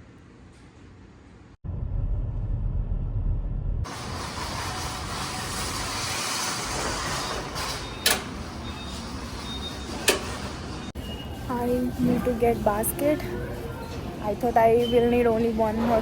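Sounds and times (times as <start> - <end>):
low steady rumble: 1.6 - 4.5.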